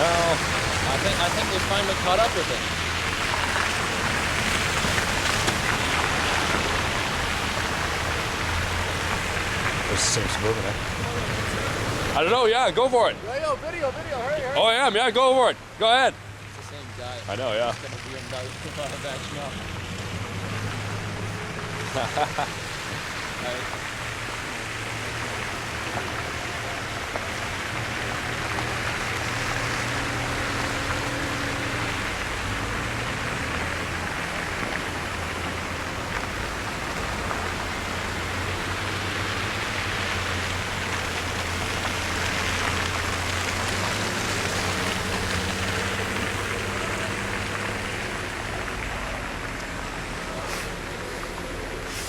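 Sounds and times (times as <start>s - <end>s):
tyres hissing through wet snow: 0.0s - 52.0s.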